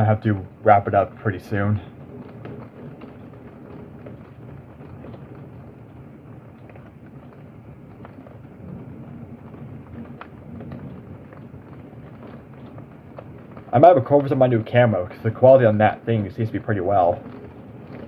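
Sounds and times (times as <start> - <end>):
low rumble of thunder: 0.0 - 18.0
muffled heavy rain: 0.0 - 18.0.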